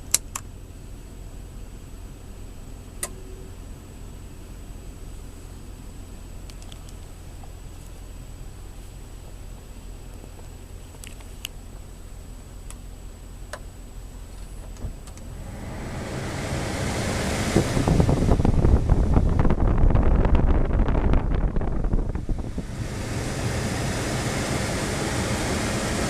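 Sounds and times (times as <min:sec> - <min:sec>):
low steady rumble: 0:00.0 - 0:26.0
wind buffeting microphone: 0:17.4 - 0:23.6.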